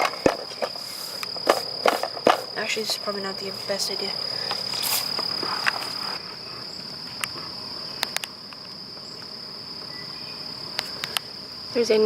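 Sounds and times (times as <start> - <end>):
insects trilling: 0.0 - 12.0
rustling: 4.4 - 6.4.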